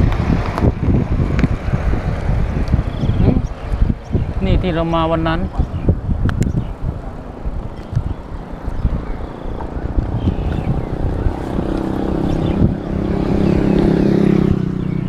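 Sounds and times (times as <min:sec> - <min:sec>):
wind buffeting microphone: 0:00.0 - 0:15.0
small engine passing: 0:06.8 - 0:15.0.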